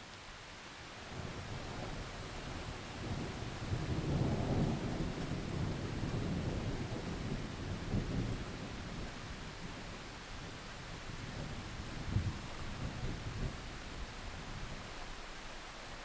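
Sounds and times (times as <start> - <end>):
steady rain: 0.0 - 16.0
thunder rumbling: 1.2 - 9.8.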